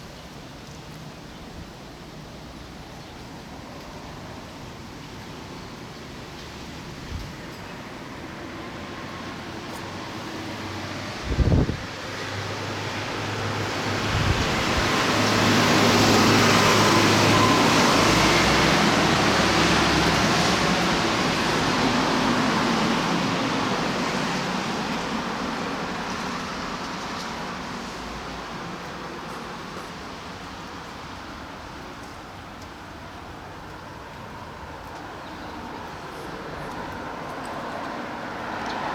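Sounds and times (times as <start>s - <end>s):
strong wind gust: 10.8s - 25.8s
wind buffeting microphone: 11.0s - 12.0s, 13.4s - 16.5s.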